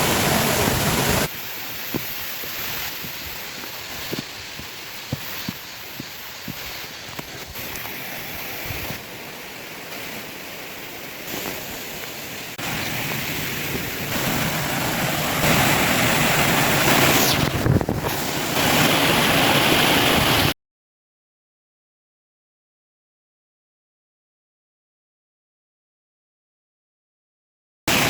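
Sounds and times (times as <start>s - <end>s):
water rushing over rocks: 0.0s - 20.6s.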